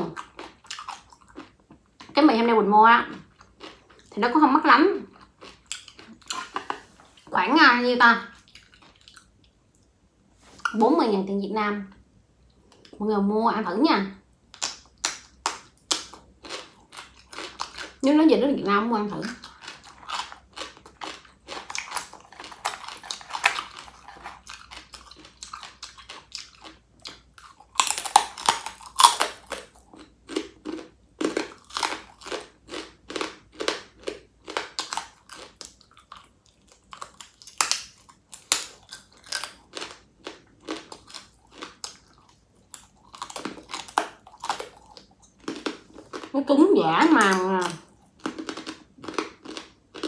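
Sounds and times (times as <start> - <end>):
crunchy bites and chewing: 0.0 - 2.1, 5.1 - 6.6, 14.5 - 18.0, 19.3 - 46.3, 47.2 - 50.0.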